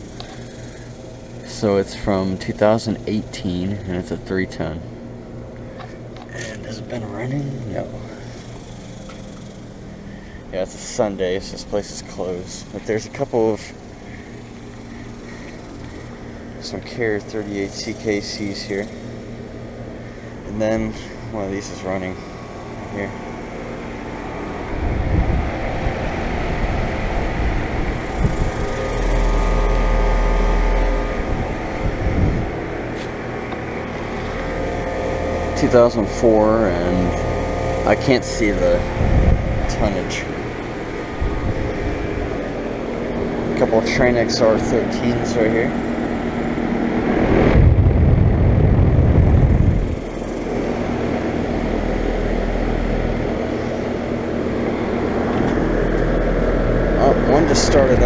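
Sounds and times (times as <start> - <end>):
air conditioner unit humming: 0.0 - 58.0
deep low rumble: 24.4 - 36.2, 37.1 - 43.4, 45.8 - 58.0.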